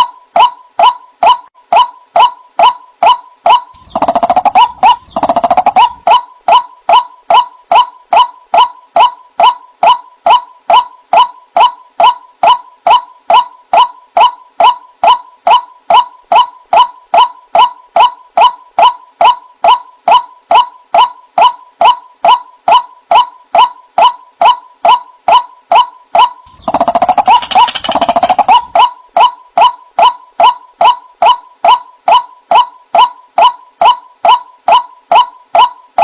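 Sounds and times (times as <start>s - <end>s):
waterhen calling kwak notes: 0.8s - 9.6s, 26.2s - 31.0s.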